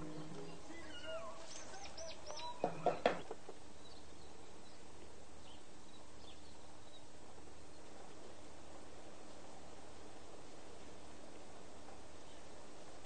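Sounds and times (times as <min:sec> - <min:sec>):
birds chirping: 0:00.0 - 0:13.0
steady background hiss: 0:00.0 - 0:13.0.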